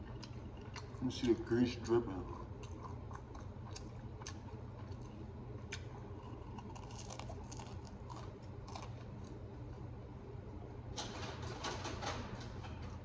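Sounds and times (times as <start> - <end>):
person chewing: 0.0 - 9.9
low room hum: 0.0 - 13.0.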